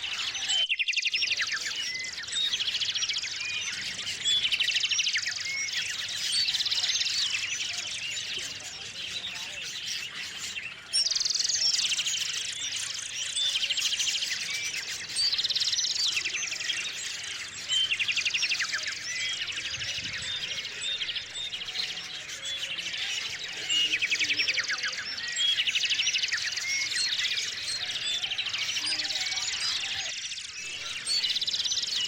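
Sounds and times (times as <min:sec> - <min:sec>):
bird trilling song phrase: 0:00.0 - 0:32.0
songbirds chirping: 0:00.0 - 0:32.0.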